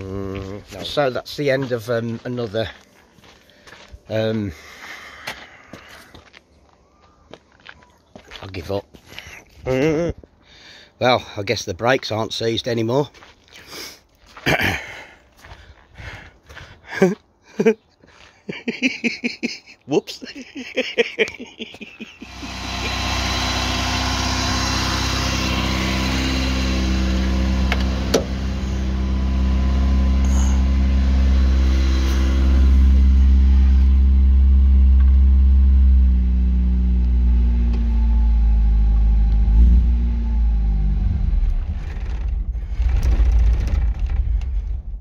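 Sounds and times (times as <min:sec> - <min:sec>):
car engine idling: 0:22.2 - 0:45.0.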